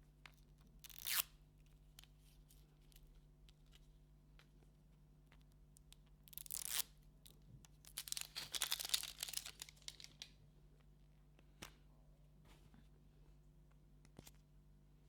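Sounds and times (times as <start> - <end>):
packaging tearing and crinkling: 7.9 - 10.3.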